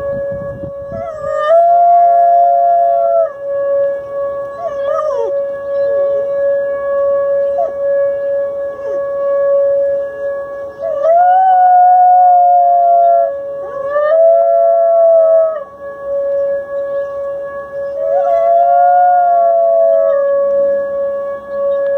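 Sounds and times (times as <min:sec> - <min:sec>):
steady droning tone: 0:00.0 - 0:21.9
dog howling: 0:01.0 - 0:03.5, 0:04.4 - 0:06.4, 0:07.0 - 0:09.2, 0:10.7 - 0:15.8, 0:17.9 - 0:20.6.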